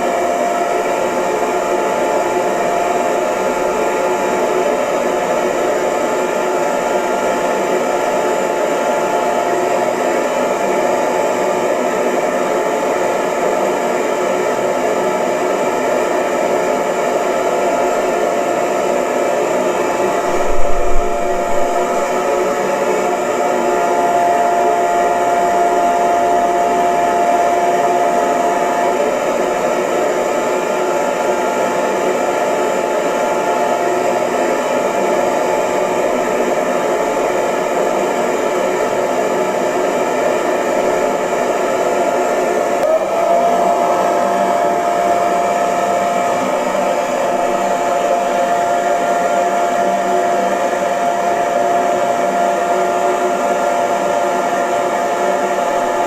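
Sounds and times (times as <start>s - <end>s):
hair dryer blowing air: 0.0s - 56.0s
motor whine: 20.1s - 22.5s.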